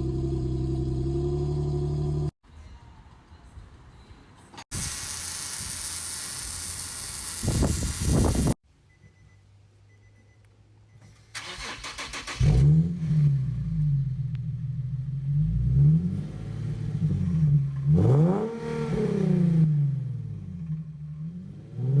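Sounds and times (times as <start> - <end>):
engine starter cranking: 4.8 - 8.6, 11.3 - 12.7
car engine revving: 11.4 - 22.0.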